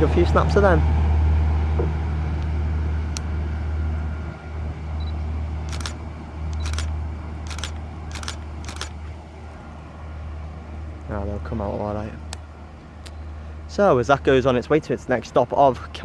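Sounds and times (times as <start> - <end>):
generator humming: 0.0 - 9.7
camera shutter clicks: 5.7 - 9.0.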